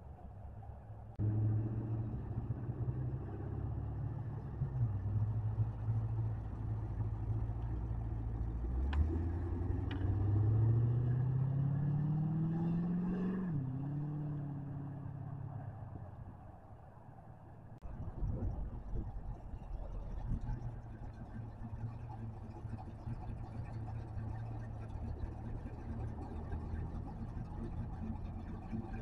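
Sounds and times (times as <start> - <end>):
car engine revving: 1.2 - 15.6.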